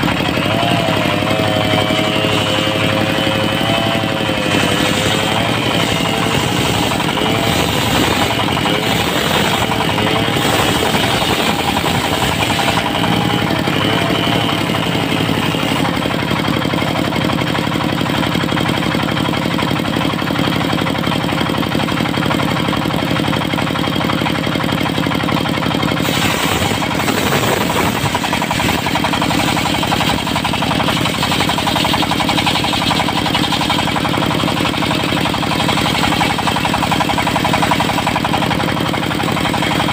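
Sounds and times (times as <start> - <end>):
circular saw cutting wood: 0.0 - 20.1, 25.5 - 39.9
sawmill engine drone: 0.0 - 39.9.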